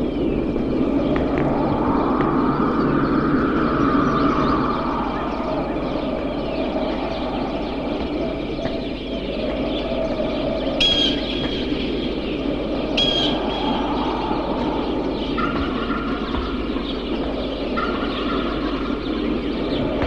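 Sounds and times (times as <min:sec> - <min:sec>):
loud bird calls: 0:00.0 - 0:20.0
steady noisy background: 0:00.0 - 0:20.0.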